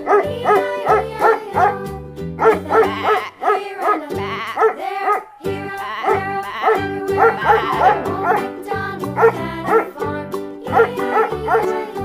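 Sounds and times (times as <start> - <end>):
dog barking: 0.0 - 1.8, 2.4 - 5.3, 6.0 - 8.5, 9.2 - 9.9, 10.7 - 11.8
children's background music: 0.0 - 12.0.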